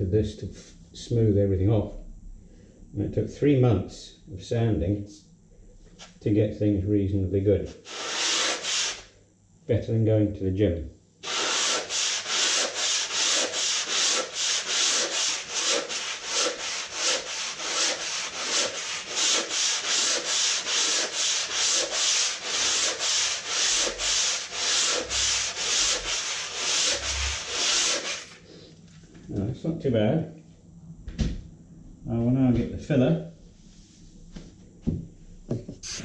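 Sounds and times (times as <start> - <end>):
sandpaper rubbing on plaster wall: 7.7 - 9.1, 11.2 - 28.6.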